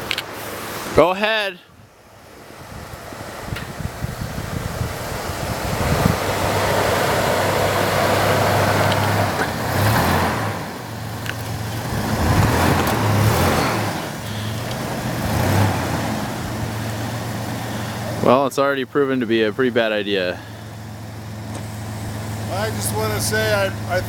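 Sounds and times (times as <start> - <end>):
engine running hard under load: 2.2 - 24.0
wheels spinning in snow: 2.4 - 18.4.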